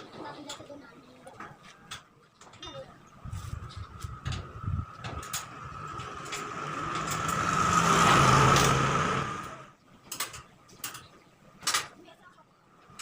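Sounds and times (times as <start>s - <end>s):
motor vehicle passing by: 3.1s - 9.8s.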